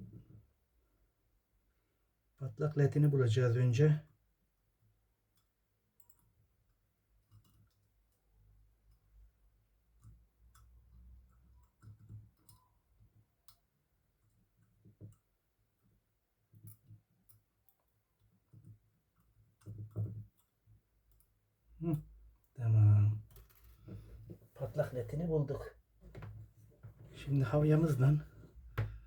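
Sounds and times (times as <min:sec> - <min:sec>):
small parts clicking and tapping: 0:05.2 - 0:22.6, 0:23.2 - 0:24.3.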